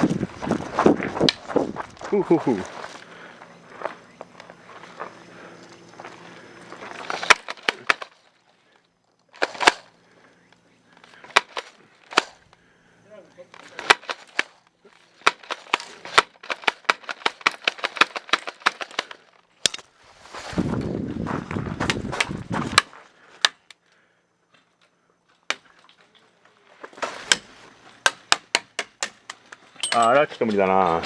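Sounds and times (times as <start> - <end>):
airsoft guns firing: 9.4 - 9.9, 11.2 - 12.4, 13.8 - 14.6, 15.2 - 19.1.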